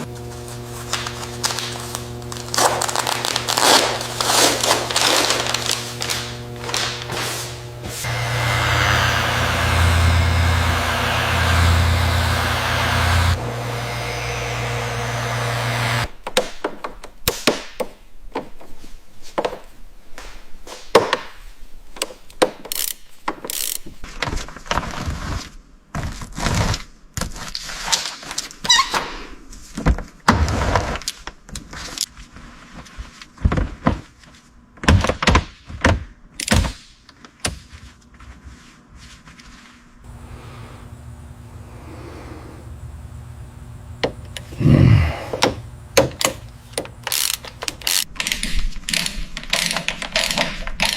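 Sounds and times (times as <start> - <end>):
mechanical drone: 0.9 - 16.1.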